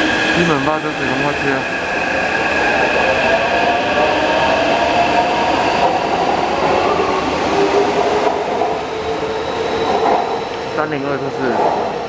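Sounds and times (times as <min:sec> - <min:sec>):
train wheel and running noise: 0:00.0 - 0:12.0.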